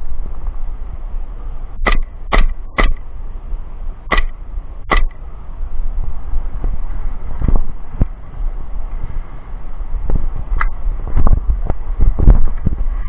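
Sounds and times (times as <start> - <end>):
wind rumble on microphone: 0.0 - 13.0
airsoft gun shots: 1.8 - 3.1, 4.1 - 5.3
dull knocks: 1.9 - 3.0, 4.1 - 5.2.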